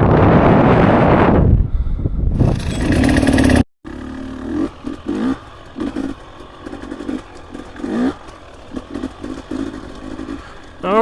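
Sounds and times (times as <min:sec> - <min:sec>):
wind rush: 0:00.0 - 0:03.6
dirt bike engine revving: 0:02.4 - 0:11.0.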